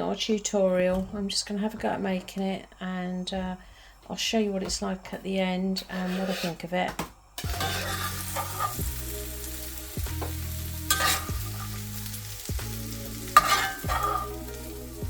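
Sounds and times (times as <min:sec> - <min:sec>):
background music: 0:07.4 - 0:15.0
food sizzling in frying pan: 0:07.4 - 0:15.0.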